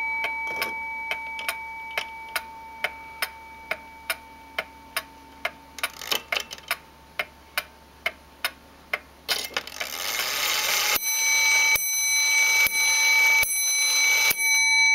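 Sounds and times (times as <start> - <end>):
clock ticking: 0.0 - 9.1.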